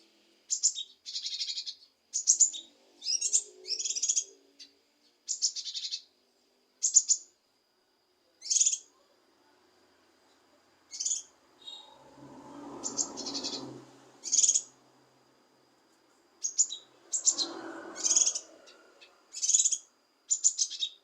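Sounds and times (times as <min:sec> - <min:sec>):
bird chattering calls: 0:10.9 - 0:12.0, 0:12.8 - 0:14.8, 0:16.4 - 0:21.0.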